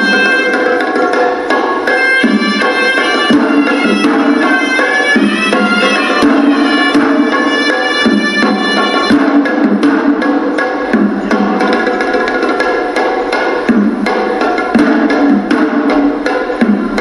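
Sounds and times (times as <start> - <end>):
reed pipe melody: 0.0 - 9.6
drums in fast dense rhythm: 0.0 - 17.0.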